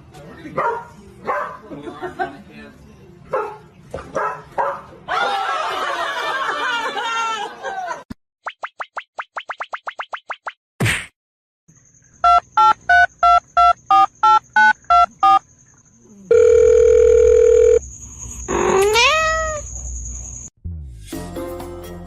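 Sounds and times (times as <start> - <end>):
telephone keypad touch-tones: 12.3 - 15.4
steady phone tone: 16.3 - 17.8
cat meowing: 18.6 - 19.7.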